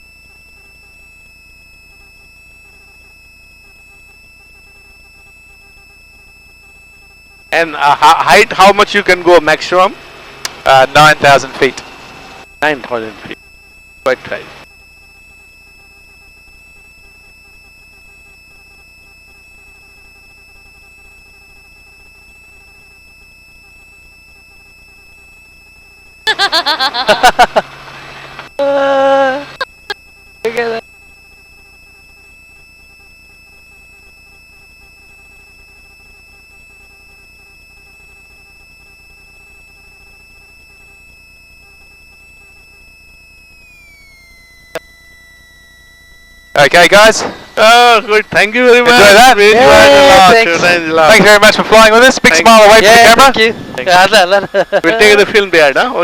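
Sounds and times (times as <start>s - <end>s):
high whine tones: 0.0s - 56.0s
helicopter cabin hum: 7.5s - 23.6s, 24.8s - 32.7s, 41.4s - 56.0s.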